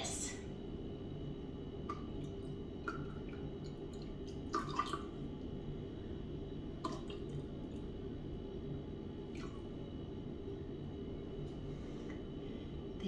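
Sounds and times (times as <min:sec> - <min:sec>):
steady low hum: 0:00.0 - 0:13.0
drips plinking into water: 0:01.8 - 0:05.2.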